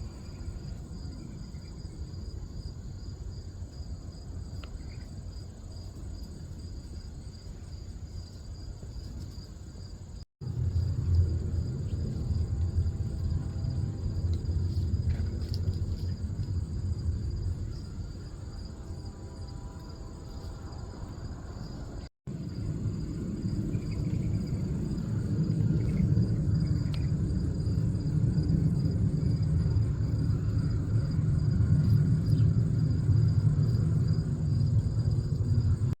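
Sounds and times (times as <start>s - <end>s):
low rumble: 10.4s - 36.0s.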